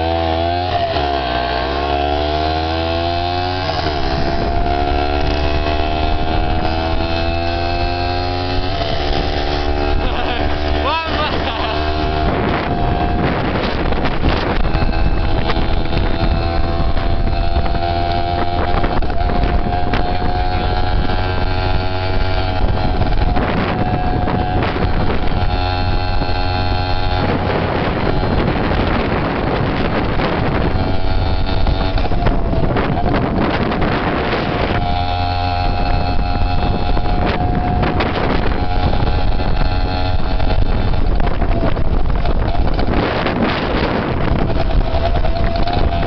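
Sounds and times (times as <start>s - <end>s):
dirt bike engine cruising: 0.0s - 46.0s
wind rumble on microphone: 0.0s - 46.0s.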